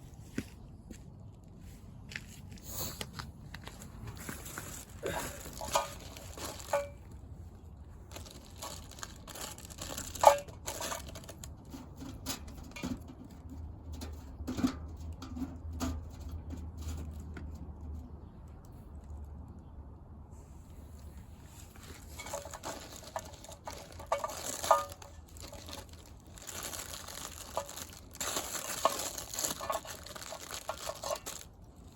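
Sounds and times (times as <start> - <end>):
dry material torn and crumpled: 8.1 - 11.5, 21.8 - 31.9.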